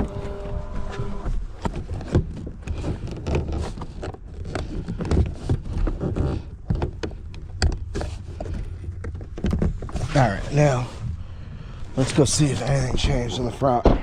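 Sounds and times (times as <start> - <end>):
connectors clicking and knocking: 0.0 - 10.2.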